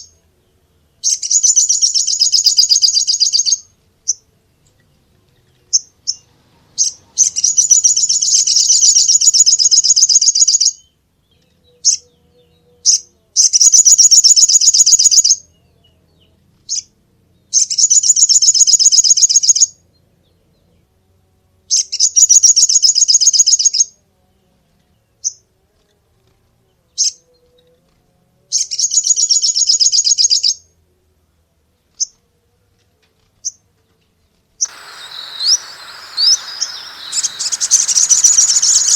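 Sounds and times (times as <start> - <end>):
bird chirps: 34.6 - 38.9
bird singing high fast trills: 34.6 - 38.9.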